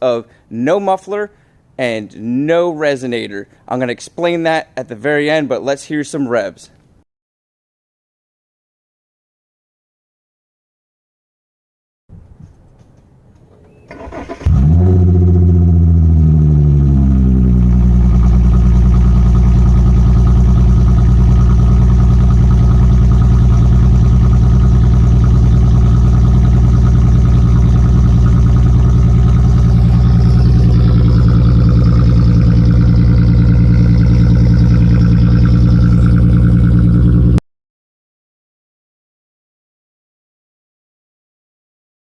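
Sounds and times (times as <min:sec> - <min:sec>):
car engine starting and idling: 0:13.4 - 0:37.4.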